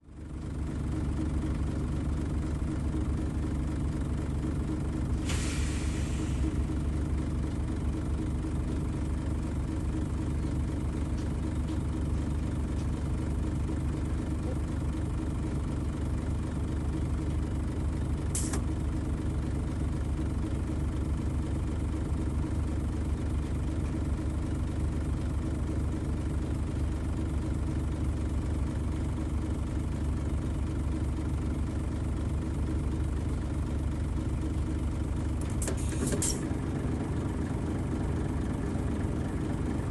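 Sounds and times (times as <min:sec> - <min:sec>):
diesel bus engine idling: 0:00.0 - 0:39.9
brief hiss: 0:05.2 - 0:06.5.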